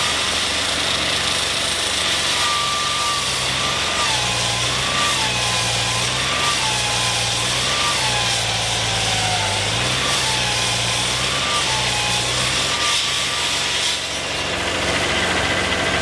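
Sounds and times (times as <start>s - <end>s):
construction machinery engine hum: 0.0s - 16.0s
thin squeal: 2.0s - 14.3s.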